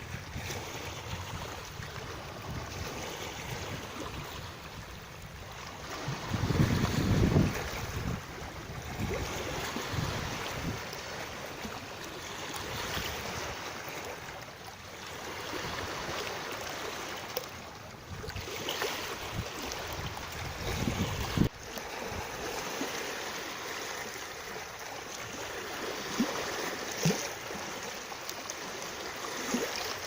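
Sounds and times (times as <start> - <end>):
wind on microphone: 0.0 - 11.4, 18.0 - 22.5
rushing water: 0.0 - 30.0.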